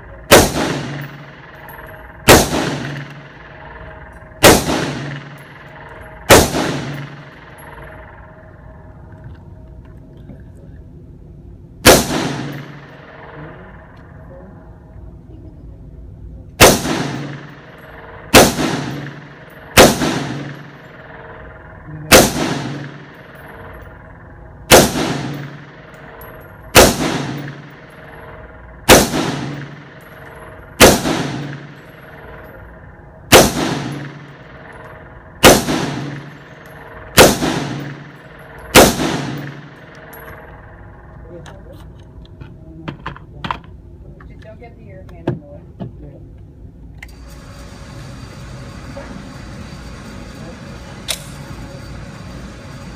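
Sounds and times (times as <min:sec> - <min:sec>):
gunshots with echo: 0:00.1 - 0:08.2, 0:11.8 - 0:14.2, 0:16.6 - 0:41.2.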